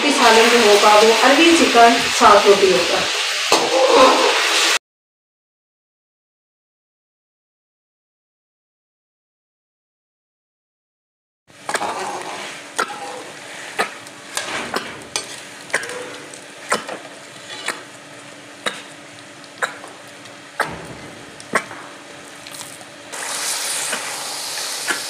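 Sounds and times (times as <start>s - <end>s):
food sizzling in a pot: 0.0s - 4.8s, 11.5s - 25.0s.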